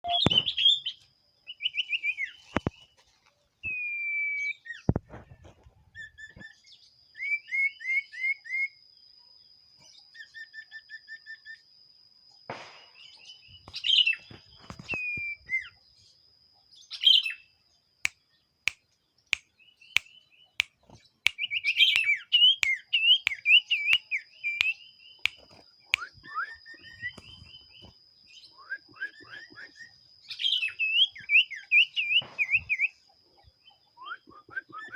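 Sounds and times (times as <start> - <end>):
bird singing chirps and trills: 0.0 - 3.0, 5.9 - 12.4, 13.0 - 34.9
sharp clicks: 25.3 - 26.1.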